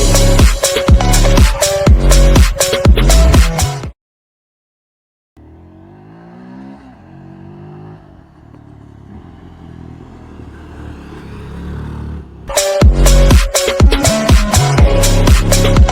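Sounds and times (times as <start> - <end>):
motorcycle engine revving: 5.4 - 15.2.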